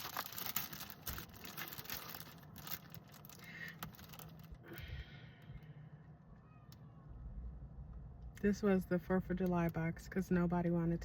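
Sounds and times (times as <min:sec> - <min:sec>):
rustling and clicks of items handled: 0:00.0 - 0:04.8.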